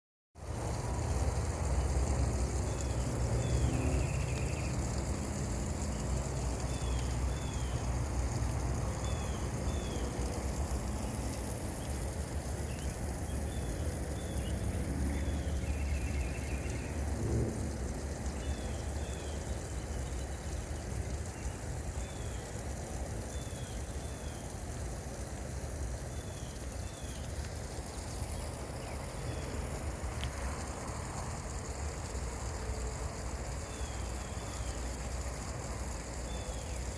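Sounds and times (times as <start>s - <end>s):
steady low rumble: 0.8s - 18.8s
small bird singing: 2.6s - 5.0s, 5.8s - 8.0s, 8.9s - 17.1s, 18.2s - 20.4s, 33.6s - 34.8s, 36.1s - 36.9s.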